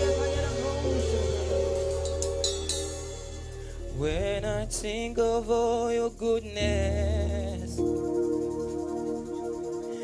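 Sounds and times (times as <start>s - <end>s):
person singing: 0.0s - 2.2s, 3.8s - 8.2s
sustained keyboard chords: 0.0s - 10.0s.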